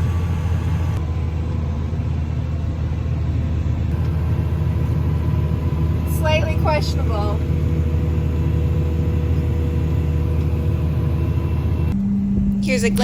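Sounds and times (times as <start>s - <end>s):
tractor engine drone: 0.0s - 13.0s.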